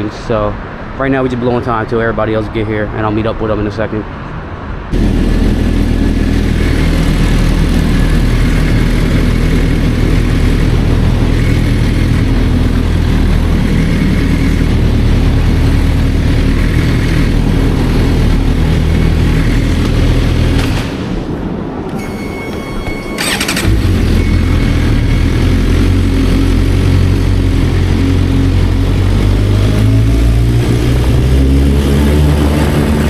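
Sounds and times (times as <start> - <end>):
motorcycle engine running: 5.0 - 21.0, 23.2 - 33.0.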